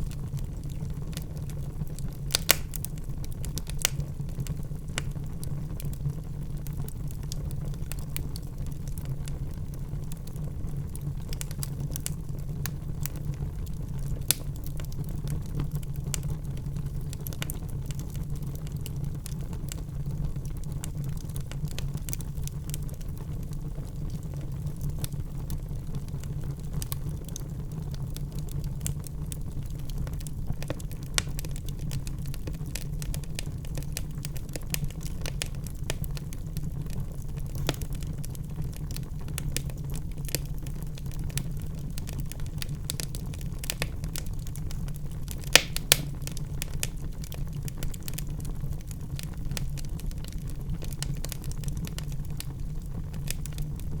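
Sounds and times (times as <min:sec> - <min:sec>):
logs crackling and popping: 0:00.0 - 0:54.0
low rumble of flames: 0:00.0 - 0:54.0.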